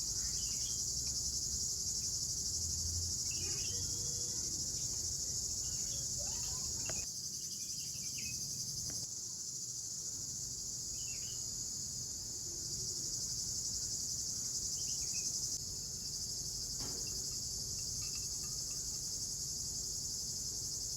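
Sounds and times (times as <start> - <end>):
faint bird chirps: 0.0 - 0.9, 3.2 - 5.0, 10.9 - 11.5
crickets trilling: 0.0 - 20.9.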